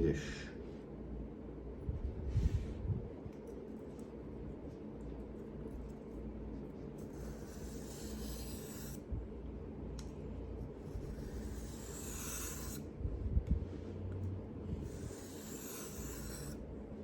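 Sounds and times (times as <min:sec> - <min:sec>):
knife scraping on sharpener: 0:07.1 - 0:09.0, 0:10.9 - 0:12.8, 0:14.9 - 0:16.6.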